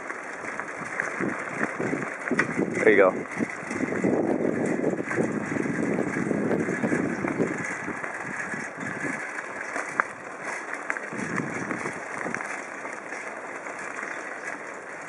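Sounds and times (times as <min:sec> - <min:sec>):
light clicks from bike: 0:00.0 - 0:03.8
bicycle rumbling along road: 0:00.0 - 0:15.0.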